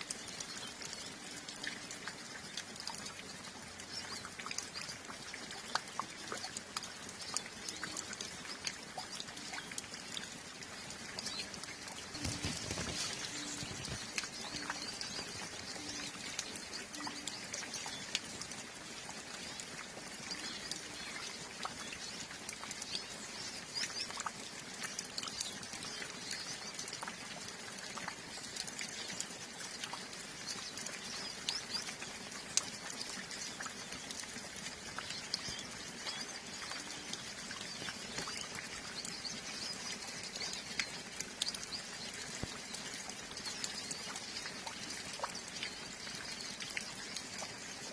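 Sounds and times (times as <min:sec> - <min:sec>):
light rain: 0:00.0 - 0:47.9
water dripping: 0:00.0 - 0:47.9
birds twittering: 0:10.8 - 0:18.4.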